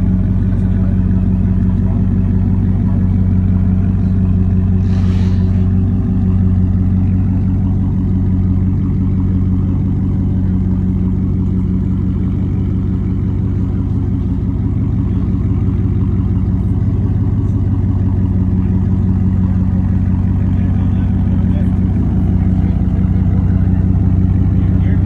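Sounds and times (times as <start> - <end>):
truck engine running at low revs: 0.0 - 25.0.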